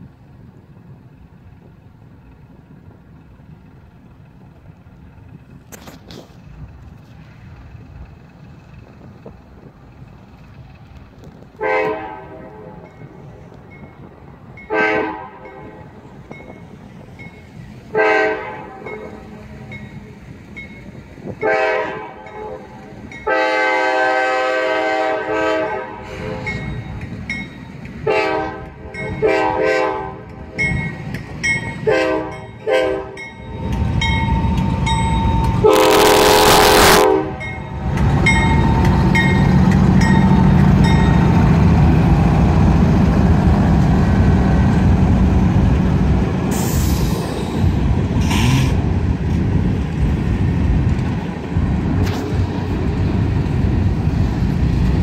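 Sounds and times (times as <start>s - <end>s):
freight cars rumbling past: 0.0s - 55.0s
locomotive engine rumble: 0.0s - 55.0s
train horn blasts: 11.6s - 13.0s, 14.6s - 15.9s, 17.9s - 19.6s, 21.3s - 26.6s, 28.0s - 30.7s, 31.8s - 33.3s, 35.5s - 37.6s, 48.2s - 48.8s
crossing bell dinging: 12.2s - 23.6s, 26.1s - 41.6s.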